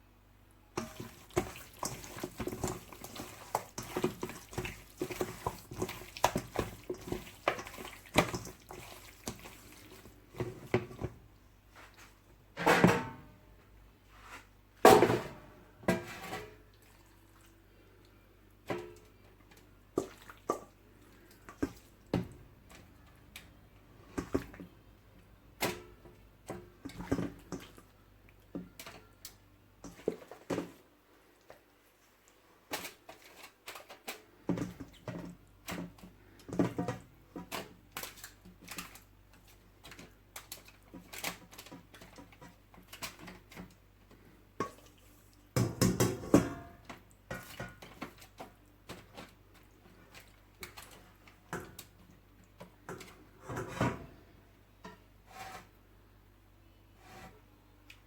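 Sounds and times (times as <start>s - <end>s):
wet squelches of raw chicken: 0.8s - 10.7s, 16.6s - 23.6s, 47.0s - 53.2s.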